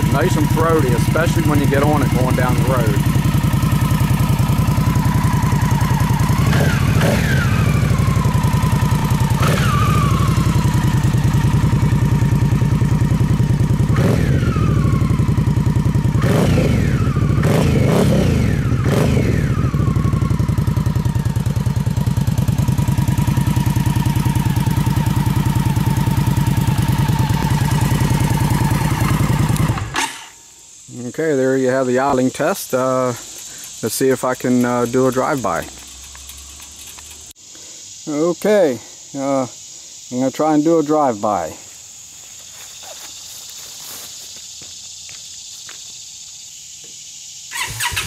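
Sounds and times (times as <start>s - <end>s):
motorcycle throttle blips: 0.0s - 30.4s, 32.1s - 37.4s
motorcycle engine idling: 0.0s - 38.1s.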